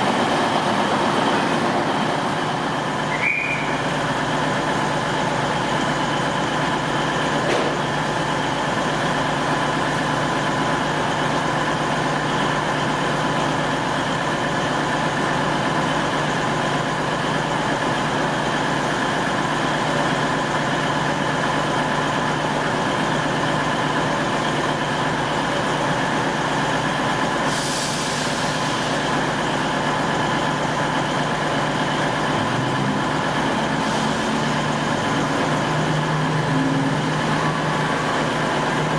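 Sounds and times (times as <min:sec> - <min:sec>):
diesel train humming: 0:00.0 - 0:38.9
air release hiss: 0:27.5 - 0:29.0.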